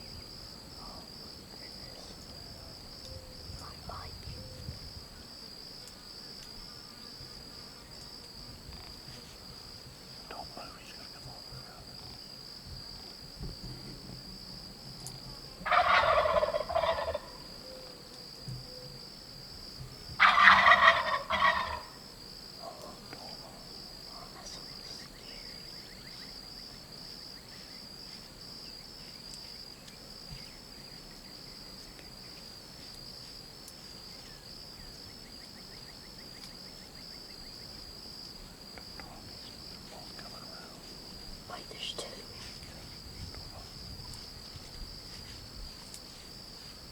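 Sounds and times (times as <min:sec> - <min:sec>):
turkey gobbling: 0:15.6 - 0:17.4, 0:20.2 - 0:22.0.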